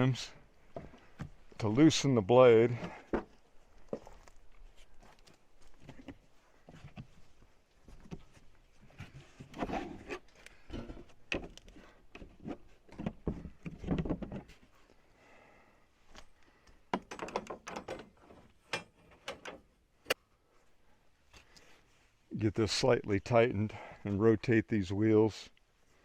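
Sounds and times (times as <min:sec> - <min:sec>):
knocks clunks and rattles: 0:10.6 - 0:14.7, 0:16.9 - 0:19.8.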